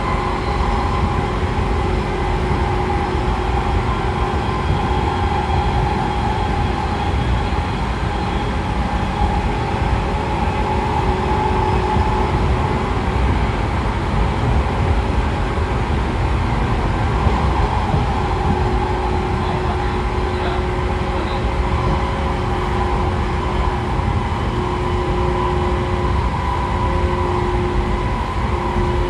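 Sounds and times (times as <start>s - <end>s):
train wheel rumble: 0.0s - 29.0s
traction motor whine: 16.0s - 29.0s.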